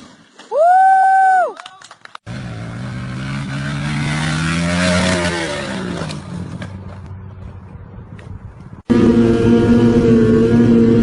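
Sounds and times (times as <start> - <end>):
motorcycle passing by: 2.2 - 8.0, 8.9 - 11.0.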